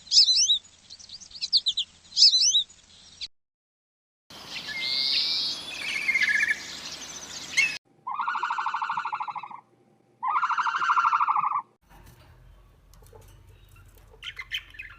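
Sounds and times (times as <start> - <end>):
bird chirps and whistled trills: 0.0 - 3.3, 4.4 - 9.6, 13.5 - 14.9
long rapidly pulsed bird calls: 0.0 - 3.3, 4.3 - 11.7, 13.6 - 14.9.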